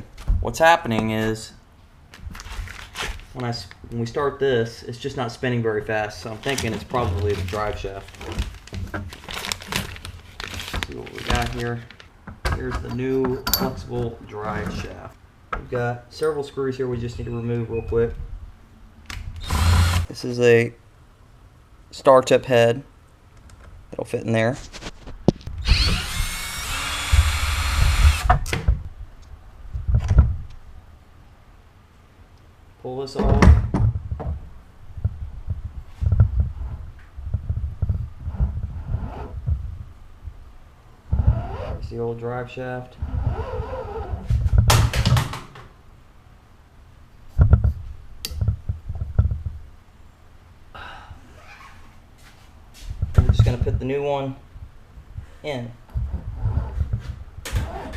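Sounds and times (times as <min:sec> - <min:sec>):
electric drill spinning: 0:19.4 - 0:20.1, 0:25.6 - 0:28.3.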